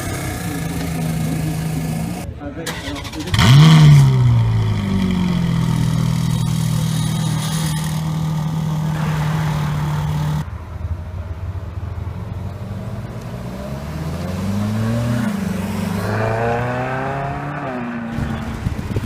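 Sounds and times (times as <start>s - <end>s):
car engine revving: 0.0s - 19.0s
steady engine note: 3.4s - 10.5s.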